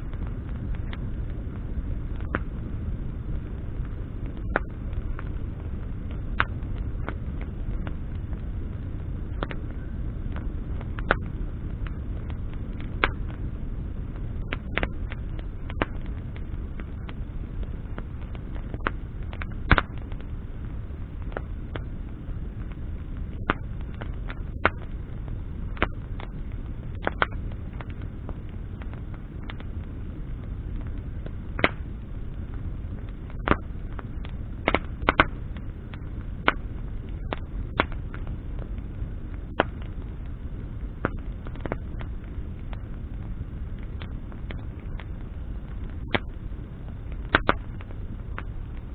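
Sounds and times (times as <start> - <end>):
campfire crackling: 0.0 - 48.9
low rumble: 0.0 - 48.9.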